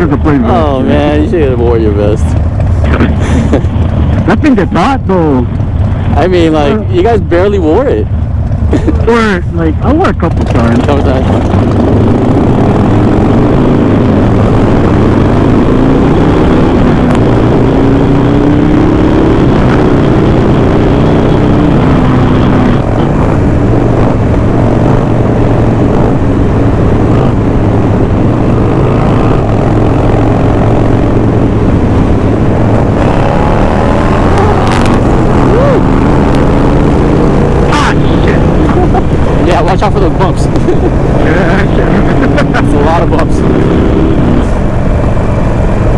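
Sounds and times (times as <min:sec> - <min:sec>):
low wind rumble: 0:00.0 - 0:45.9
motorcycle engine accelerating: 0:00.0 - 0:45.9.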